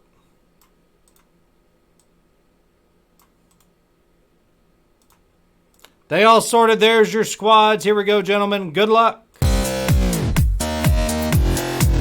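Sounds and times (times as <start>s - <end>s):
faint scattered clicks: 0.2s - 1.3s, 5.0s - 6.0s.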